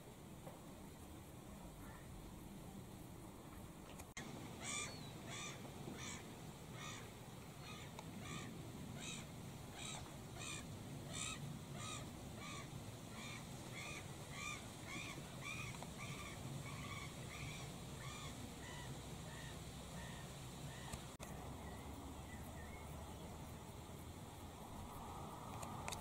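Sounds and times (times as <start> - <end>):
bird nasal call: 4.6 - 21.0
click: 25.5 - 26.0.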